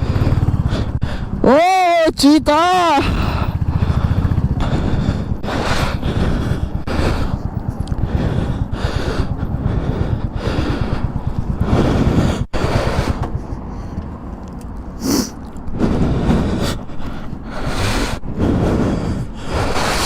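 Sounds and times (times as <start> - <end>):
wind buffeting microphone: 0.0 - 1.5, 3.0 - 20.0
motorcycle engine running: 0.0 - 14.5.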